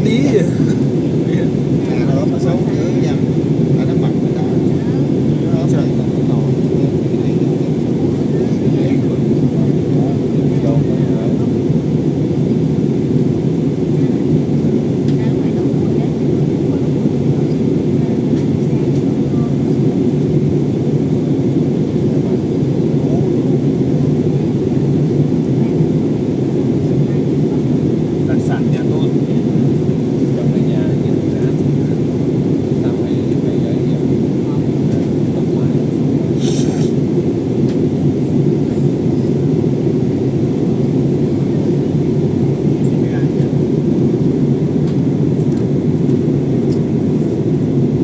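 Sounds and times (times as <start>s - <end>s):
airliner cabin engine noise: 0.0s - 48.0s.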